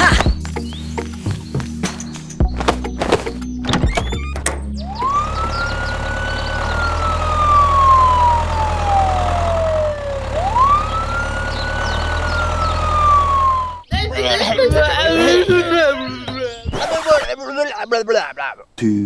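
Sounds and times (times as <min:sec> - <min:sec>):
wailing siren: 0:04.8 - 0:13.9.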